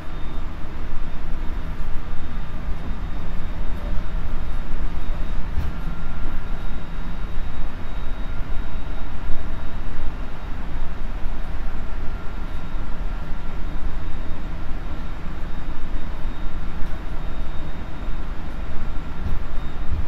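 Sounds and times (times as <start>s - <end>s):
faint motor whine: 0.0s - 20.0s
wheels rumbling on rail: 0.0s - 20.0s.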